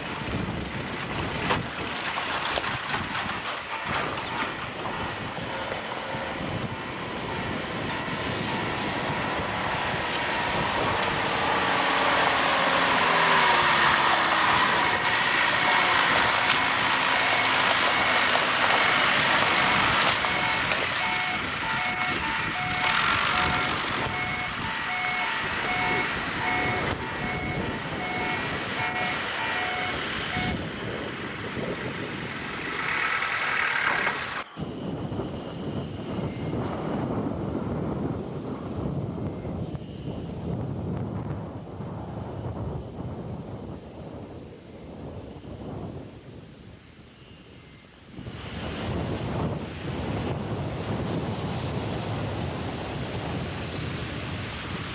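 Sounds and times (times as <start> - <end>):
diesel train running past: 3.6 - 39.5
electronic warning tone beeping: 3.7 - 11.7, 16.4 - 18.2, 18.8 - 30.6.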